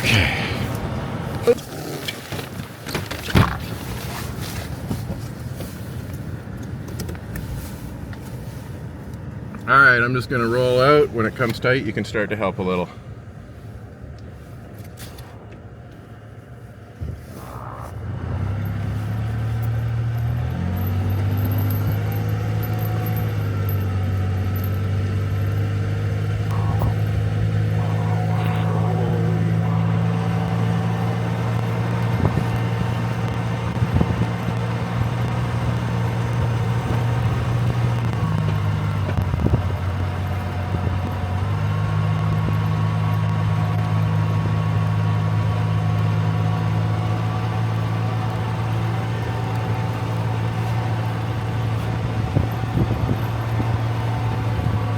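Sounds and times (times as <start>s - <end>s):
truck engine pulling under load: 0.0s - 13.2s, 14.0s - 54.9s.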